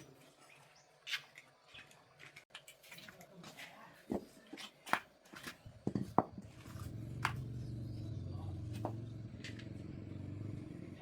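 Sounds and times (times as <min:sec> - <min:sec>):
engine running with even hum: 0:06.4 - 0:11.0.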